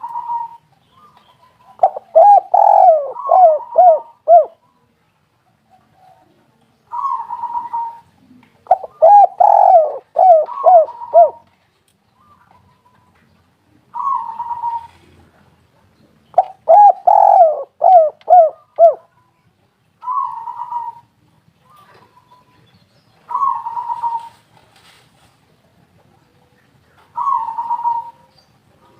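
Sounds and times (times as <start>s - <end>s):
dove cooing: 0.0s - 4.6s, 5.7s - 11.5s, 13.9s - 15.3s, 16.3s - 19.1s, 20.0s - 21.1s, 23.3s - 24.4s, 26.2s - 28.9s.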